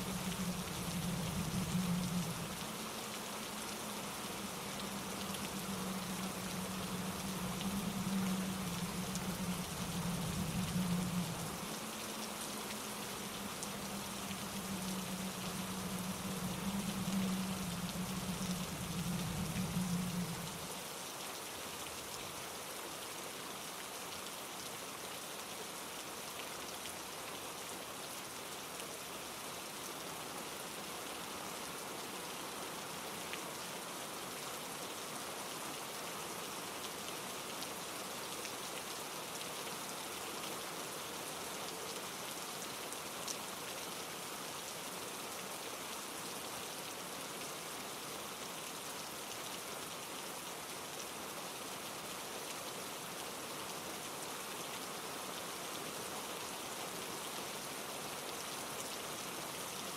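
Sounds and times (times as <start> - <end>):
stream tumbling over rocks: 0.0 - 23.0
rain falling through trees: 0.0 - 59.9.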